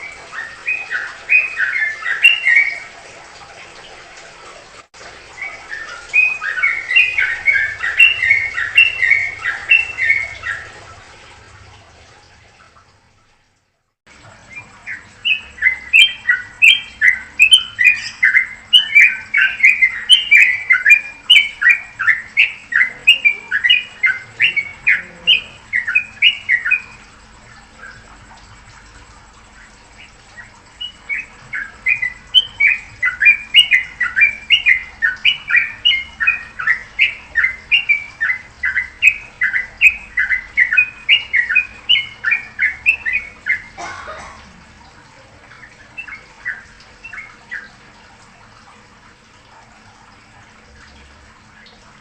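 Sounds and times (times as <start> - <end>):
songbird chattering: 6.2 - 10.7, 14.4 - 27.1, 29.9 - 43.9.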